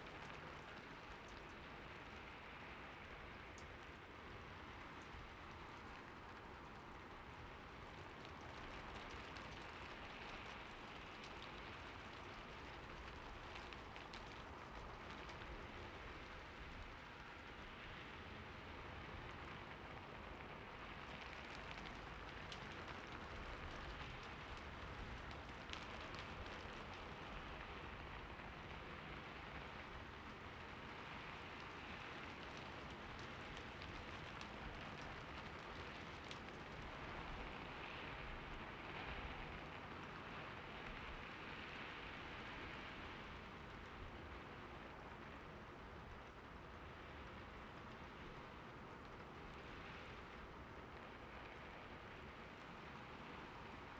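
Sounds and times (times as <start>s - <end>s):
steady rainfall hiss: 0.0s - 53.9s
raindrops ticking: 4.6s - 17.0s, 20.8s - 28.4s, 29.7s - 38.5s.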